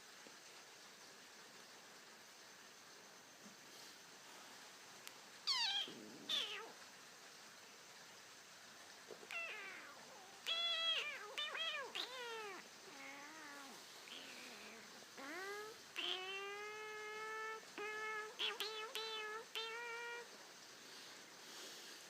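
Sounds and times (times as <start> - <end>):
cat meowing: 5.5 - 6.8, 9.2 - 20.4.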